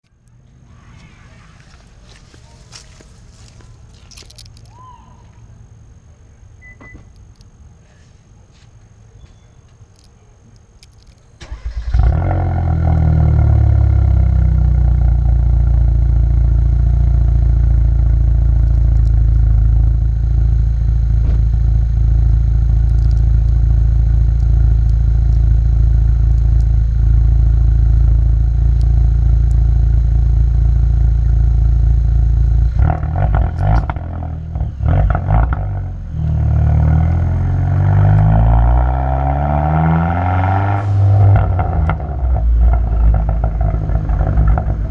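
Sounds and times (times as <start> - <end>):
car engine idling: 11.4 - 44.9
engine throttle blips and revving: 11.4 - 44.9.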